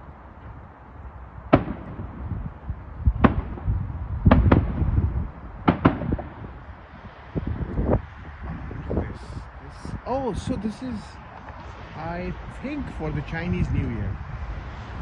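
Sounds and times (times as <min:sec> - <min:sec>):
fireworks bangs: 0:01.5 - 0:02.5, 0:03.2 - 0:06.6.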